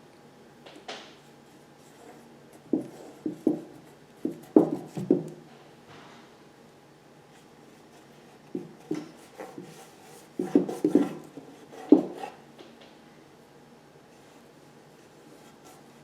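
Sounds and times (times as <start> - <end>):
pencil scratching on paper: 7.9 - 12.4.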